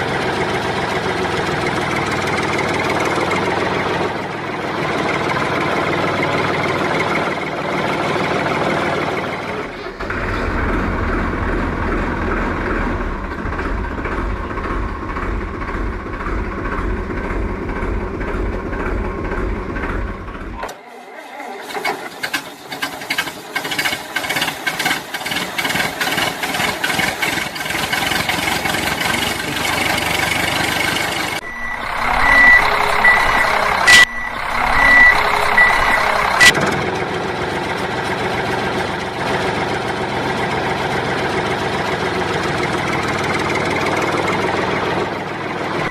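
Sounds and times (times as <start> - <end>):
rapid clicking and rattling: 21.7 - 31.4
high reversing beeps: 31.3 - 36.5.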